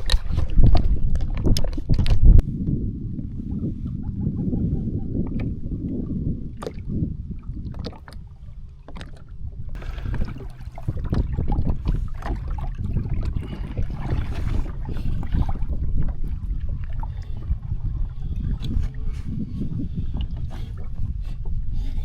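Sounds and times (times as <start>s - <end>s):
water sloshing and splashing: 0.0s - 2.4s, 5.2s - 21.8s
wind buffeting microphone: 0.0s - 22.0s.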